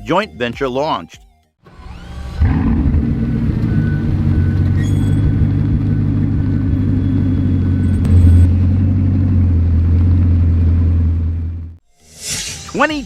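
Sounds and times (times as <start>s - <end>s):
car engine rumbling: 1.6s - 11.8s.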